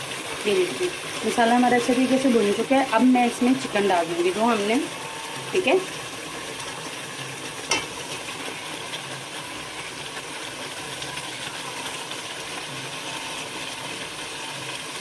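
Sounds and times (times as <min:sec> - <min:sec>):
chicken sizzling in hot oil: 0:00.0 - 0:15.0
steel spoon stirring in metal pot: 0:07.6 - 0:08.4.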